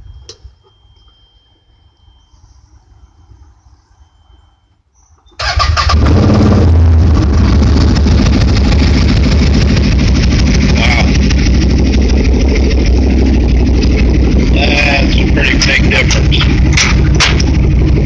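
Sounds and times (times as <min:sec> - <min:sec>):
utility vehicle engine running: 0:05.4 - 0:18.0.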